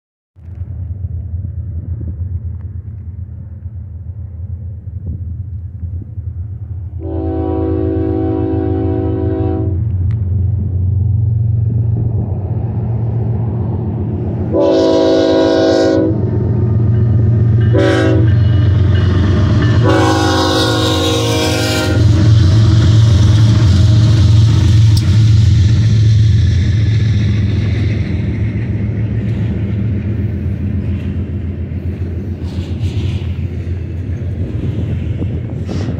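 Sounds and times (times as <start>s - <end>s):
diesel locomotive rumble: 0.4s - 35.9s
rattling wheels of rail cars: 0.4s - 35.9s
train air horn: 7.0s - 9.9s, 14.5s - 16.2s, 17.7s - 18.8s, 19.7s - 22.6s.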